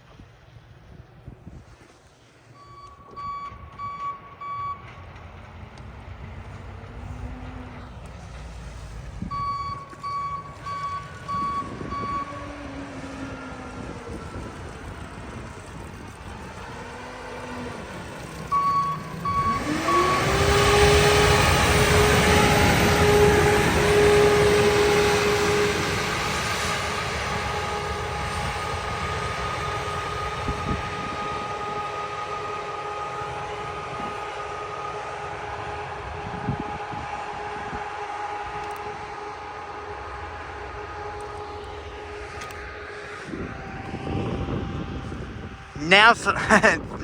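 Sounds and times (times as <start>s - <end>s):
engine rumble: 0.0s - 47.0s
machine whining tone: 2.6s - 45.8s
warning alarm beeping: 9.2s - 12.4s, 18.5s - 25.3s.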